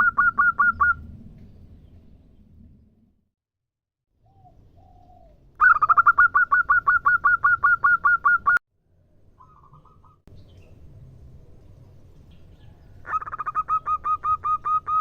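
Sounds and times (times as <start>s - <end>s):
dove cooing: 4.2s - 8.6s, 13.0s - 15.0s.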